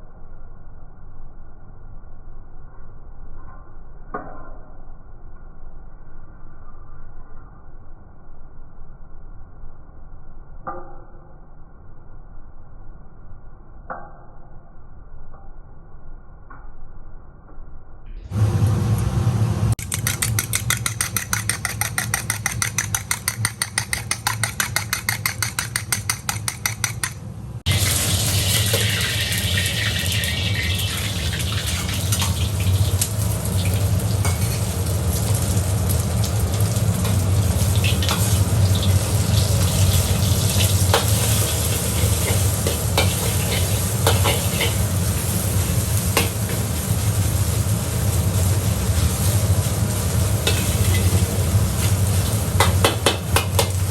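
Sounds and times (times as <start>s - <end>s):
fast even knocking: 19.8s - 27.2s
metal spatula scraping: 19.8s - 27.3s, 40.9s - 45.3s
noodles sizzling in a wok: 27.6s - 53.9s.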